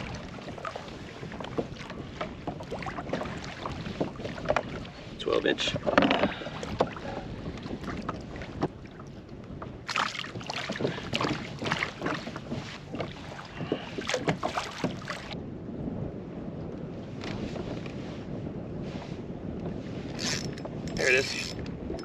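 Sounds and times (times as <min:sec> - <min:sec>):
water splashing around kayak: 0:00.0 - 0:15.4, 0:16.9 - 0:22.0
wind on microphone: 0:00.0 - 0:22.0.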